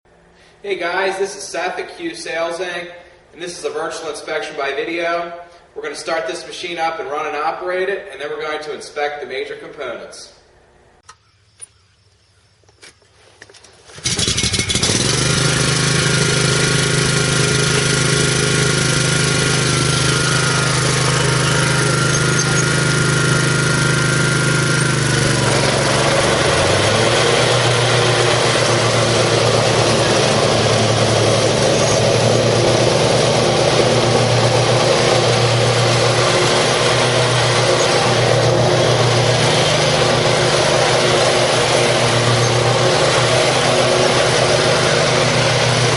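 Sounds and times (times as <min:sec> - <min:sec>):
mower engine starting and running: 0:13.6 - 0:45.9.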